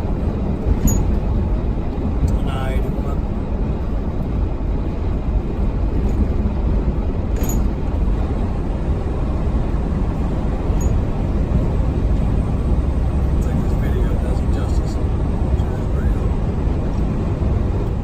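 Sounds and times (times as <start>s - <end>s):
road noise: 0.0s - 18.0s
truck engine rumble: 0.0s - 18.0s.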